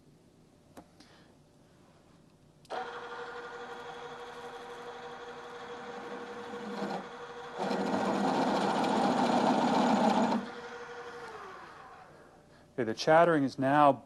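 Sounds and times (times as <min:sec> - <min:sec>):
drill chattering rattle: 0:02.7 - 0:12.1
machine motor hum: 0:02.7 - 0:12.4.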